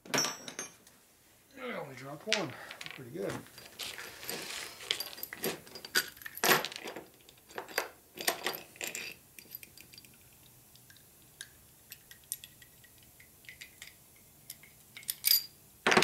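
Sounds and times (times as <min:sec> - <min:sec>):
metal engine parts clinking: 0:13.5 - 0:15.6.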